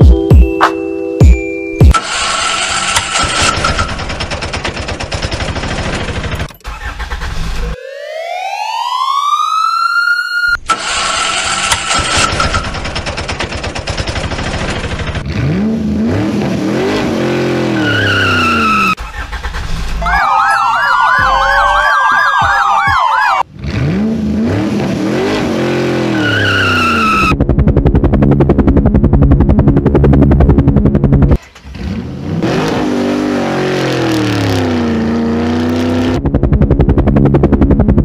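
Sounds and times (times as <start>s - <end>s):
siren wailing: 7.8s - 10.6s, 20.0s - 23.5s, 26.1s - 27.4s
engine revving: 10.6s - 20.2s, 23.4s - 38.0s
fast steady engine beat: 27.3s - 31.4s, 36.0s - 38.0s.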